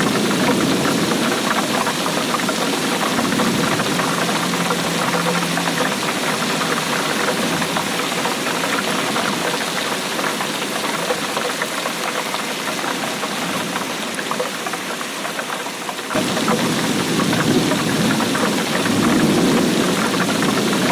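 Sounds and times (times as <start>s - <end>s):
rain pattering: 0.0s - 20.9s.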